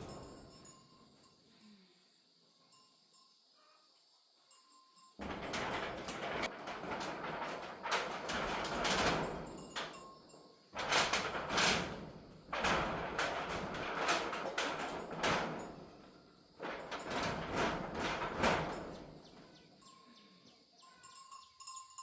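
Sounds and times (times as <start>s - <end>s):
storm wind and rain rushing: 5.2s - 9.8s, 10.8s - 15.7s, 16.6s - 19.0s.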